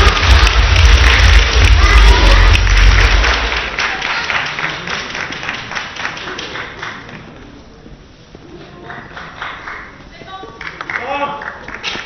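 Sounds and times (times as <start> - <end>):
crowd reaction: 0.0 - 4.6
spectators clapping in rhythm: 0.0 - 7.4, 8.9 - 10.0, 10.6 - 12.0.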